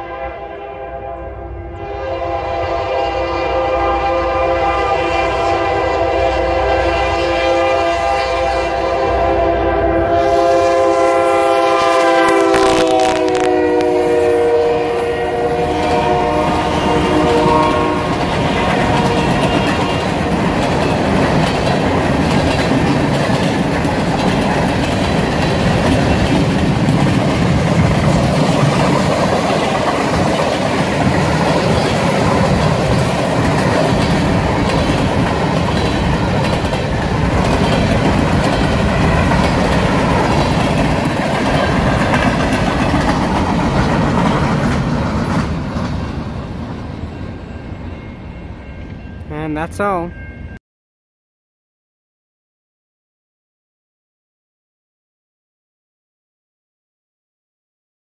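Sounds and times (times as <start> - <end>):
locomotive air horn chord: 0.0 - 20.0
train cars rumbling and clacking: 12.4 - 49.3.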